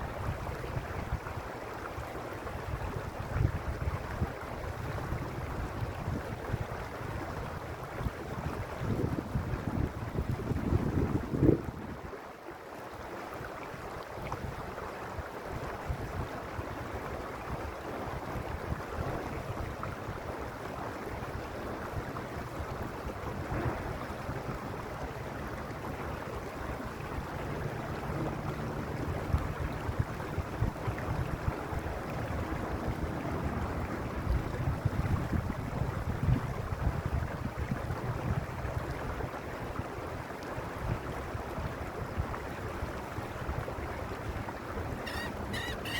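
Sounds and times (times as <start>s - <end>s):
wind buffeting microphone: 2.6s - 12.1s, 15.5s - 45.9s
stream rushing over stones: 37.6s - 45.9s.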